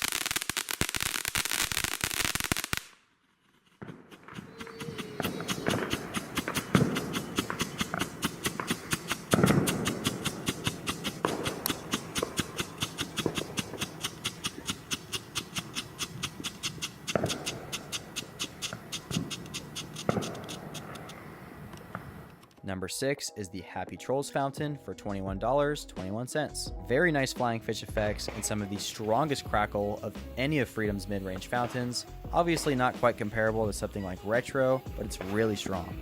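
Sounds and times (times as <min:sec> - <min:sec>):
firework fountain hissing: 0:00.0 - 0:02.9, 0:04.2 - 0:22.3
rapid firework pops: 0:00.0 - 0:02.9, 0:03.7 - 0:22.3
loud firework cracks: 0:00.0 - 0:03.1, 0:03.8 - 0:22.4.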